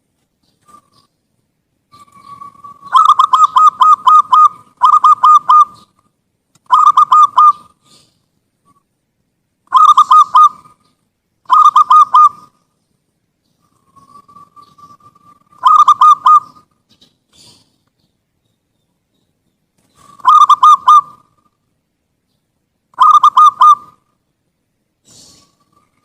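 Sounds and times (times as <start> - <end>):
dove cooing: 1.9 - 6.0, 6.7 - 8.8, 9.7 - 10.9, 11.5 - 12.6, 13.6 - 17.8, 19.9 - 21.6, 23.0 - 24.0, 25.0 - 26.0.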